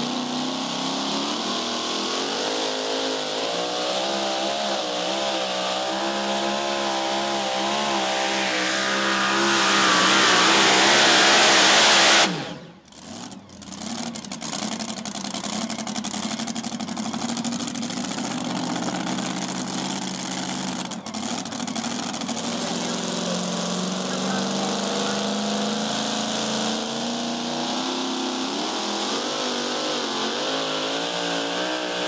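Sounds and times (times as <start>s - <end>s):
truck engine running hard: 0.0s - 32.0s
engine choppy idle: 12.3s - 27.5s.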